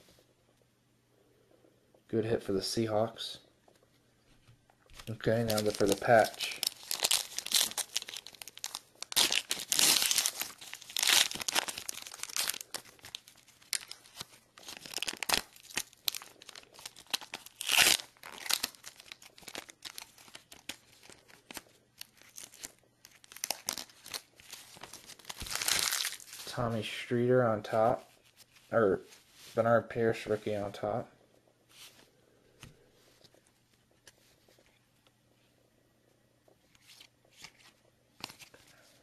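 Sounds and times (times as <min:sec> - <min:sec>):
wrapper tearing and crinkling: 0:05.0 - 0:26.5.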